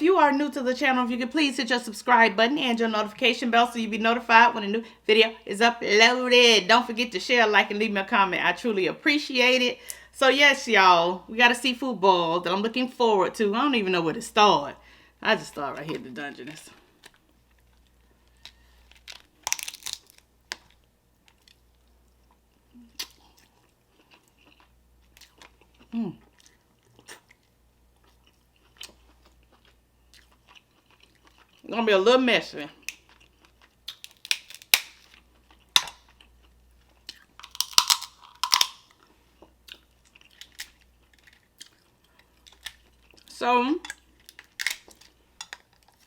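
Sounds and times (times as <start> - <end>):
person chewing: 16.8 - 31.7, 32.8 - 43.3, 43.9 - 46.0
crab shell cracking: 17.0 - 21.6, 32.8 - 36.3, 37.0 - 39.0, 39.7 - 43.2, 43.8 - 46.0.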